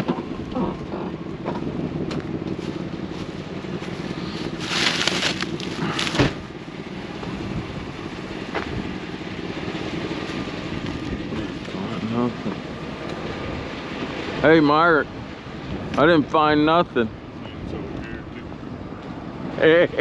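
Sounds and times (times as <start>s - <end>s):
vehicle engine humming: 0.0s - 20.0s
rustling crunching bursts: 2.6s - 6.5s.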